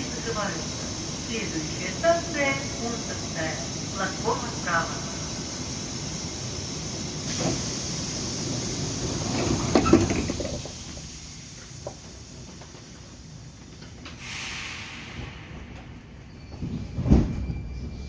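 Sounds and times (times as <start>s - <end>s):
metro train running noise: 0.0s - 18.0s
short hiss: 14.2s - 16.2s.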